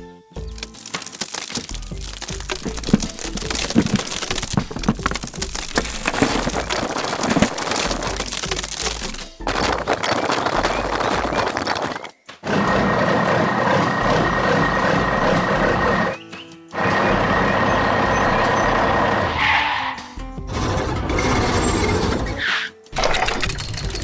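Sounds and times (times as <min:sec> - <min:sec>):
heavy truck engine running: 0:12.4 - 0:16.2, 0:16.8 - 0:19.6.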